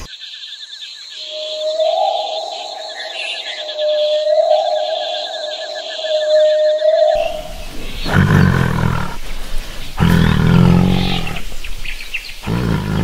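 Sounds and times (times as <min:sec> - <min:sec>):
animal low drawn-out calls: 0:07.2 - 0:13.0.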